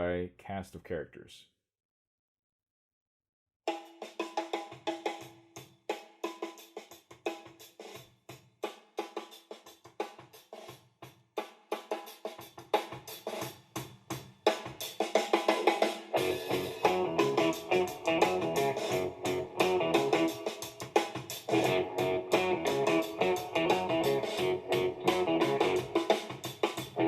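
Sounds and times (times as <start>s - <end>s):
drum kit groove: 3.7s - 27.0s
music through portable speaker: 11.4s - 27.0s.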